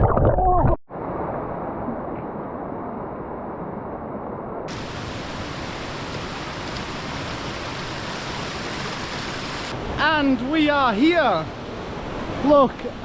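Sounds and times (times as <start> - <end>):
waterfall rushing: 4.7 - 12.6.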